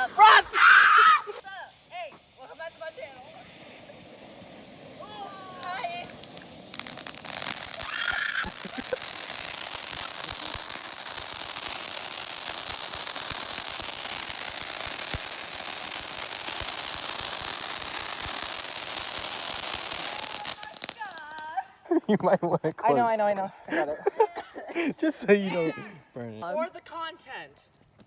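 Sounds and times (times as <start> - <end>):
firework sparks hissing and crackling: 0.0 - 22.0.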